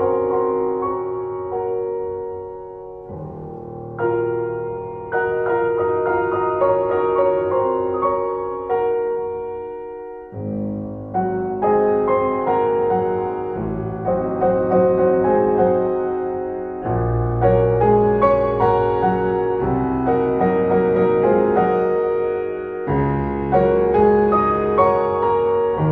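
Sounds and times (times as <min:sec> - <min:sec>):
piano music: 0:00.0 - 0:25.9.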